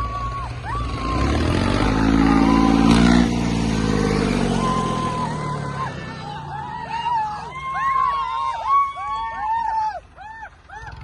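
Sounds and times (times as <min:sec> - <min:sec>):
tractor diesel engine revving: 0:00.0 - 0:07.9.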